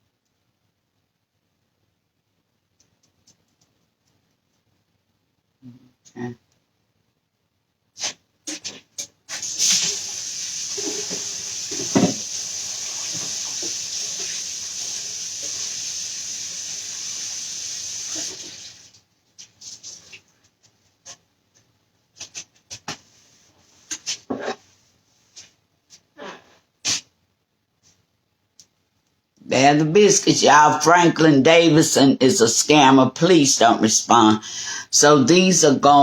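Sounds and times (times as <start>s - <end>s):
faucet running into sink: 9.4s - 19.0s.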